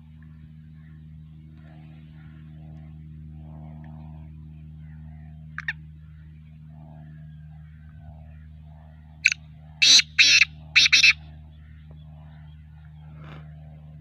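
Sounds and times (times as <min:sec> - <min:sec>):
steady low hum: 0:00.0 - 0:14.0
sharp bird chirps: 0:09.2 - 0:11.2.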